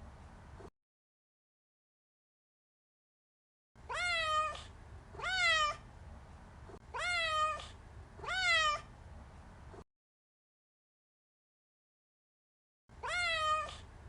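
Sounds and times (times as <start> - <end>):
cat meowing: 3.8 - 5.8, 6.9 - 8.9, 13.0 - 13.9.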